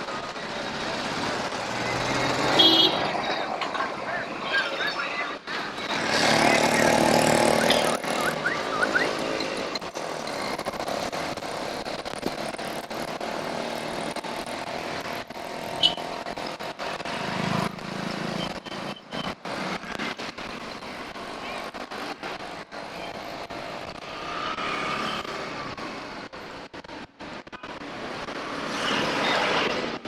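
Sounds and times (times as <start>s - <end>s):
radio interference crackles: 0.0s - 30.0s
traffic and road noise: 0.0s - 30.0s
motor vehicle passing: 5.6s - 18.9s.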